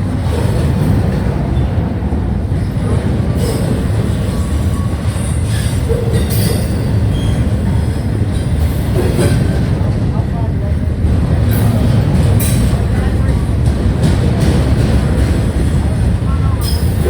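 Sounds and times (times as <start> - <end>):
train rumbling on rails: 0.0 - 17.0
train wheel squeals: 2.5 - 9.8, 15.1 - 17.0.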